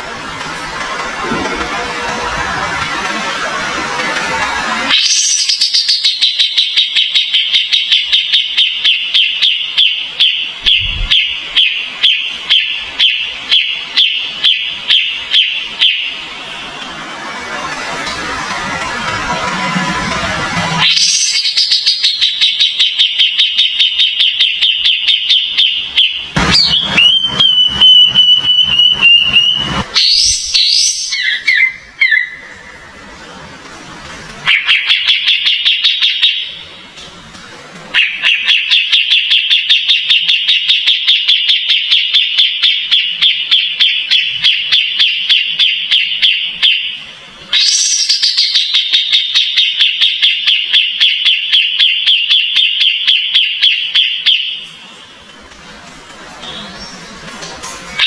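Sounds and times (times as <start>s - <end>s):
bird high whistle: 4.9s - 16.2s, 20.8s - 32.8s, 47.6s - 54.6s
songbird chirping: 20.9s - 32.8s.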